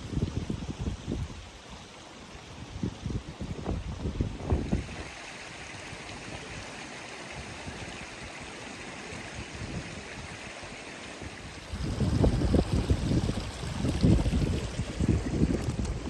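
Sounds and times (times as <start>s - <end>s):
wind buffeting microphone: 0.0s - 1.6s, 2.6s - 5.2s, 11.2s - 16.0s
stream rushing: 0.0s - 16.0s.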